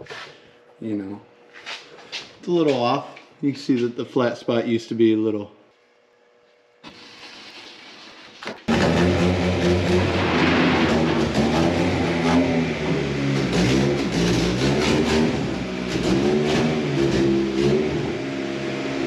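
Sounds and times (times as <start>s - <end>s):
car engine revving: 8.7s - 19.0s.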